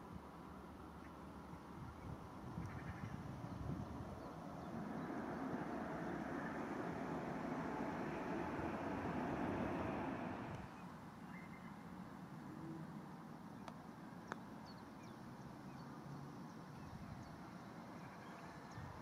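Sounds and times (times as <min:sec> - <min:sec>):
passing train rolling: 0:03.0 - 0:10.7.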